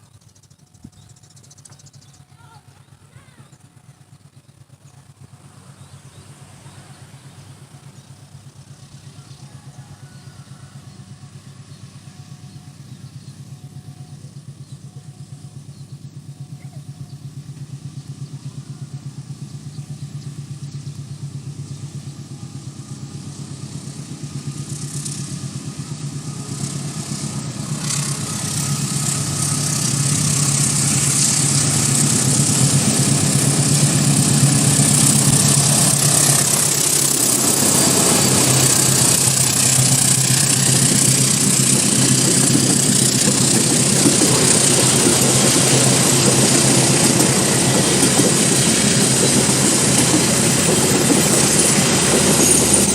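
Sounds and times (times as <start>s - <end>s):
train engine hum: 0.0s - 52.9s.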